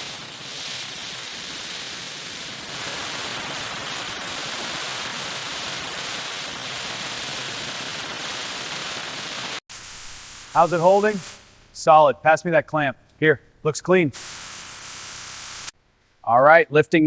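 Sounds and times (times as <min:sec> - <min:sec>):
steady hiss: 0:00.0 - 0:12.0, 0:13.9 - 0:15.8.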